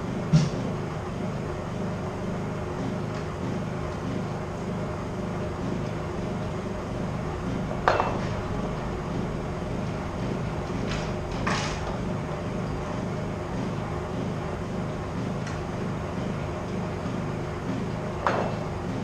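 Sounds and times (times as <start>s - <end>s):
metallic clank: 7.5s - 13.1s.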